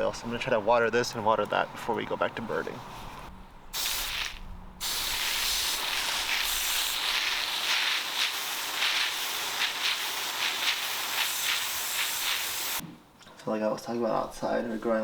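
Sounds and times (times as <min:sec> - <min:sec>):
water spraying onto plants: 0:03.8 - 0:12.8.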